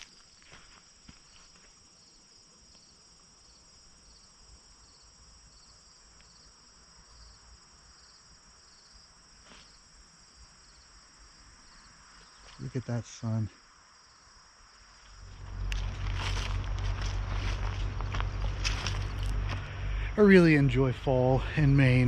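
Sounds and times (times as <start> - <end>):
crickets trilling: 0.0 - 22.0
faint low rumble: 15.0 - 22.0.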